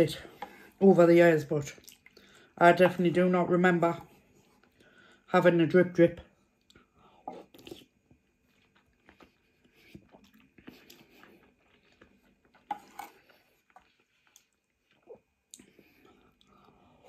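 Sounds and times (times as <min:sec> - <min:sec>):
chewing noodles: 0:06.6 - 0:17.0.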